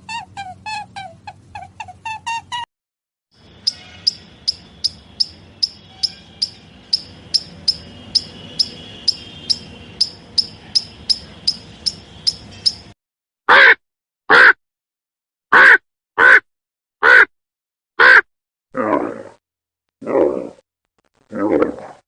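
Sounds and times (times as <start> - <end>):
loud harsh animal calls: 3.4 - 12.8, 13.5 - 14.6, 15.5 - 17.3, 18.0 - 18.3
high animal chirps: 3.4 - 13.0.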